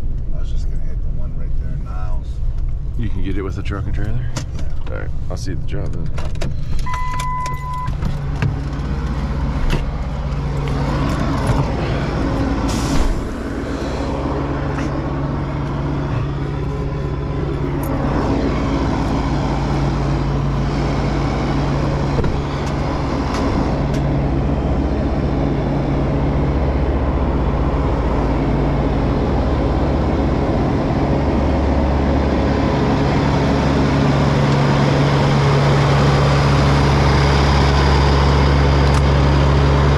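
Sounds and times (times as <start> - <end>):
road noise: 0.0 - 39.9
truck engine running: 0.0 - 39.9
short electronic beep: 6.8 - 8.0.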